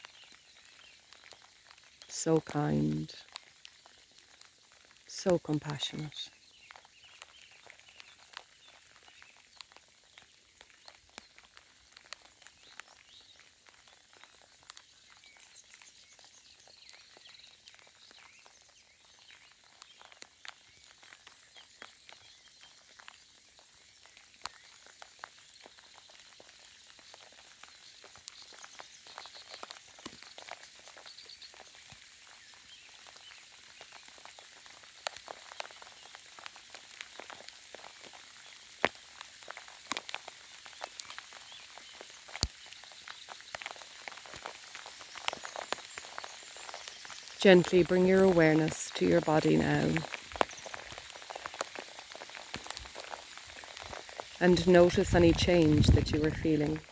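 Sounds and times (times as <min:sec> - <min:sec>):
faint rain hiss: 0:00.0 - 0:56.9
raindrops tapping: 0:33.0 - 0:56.9.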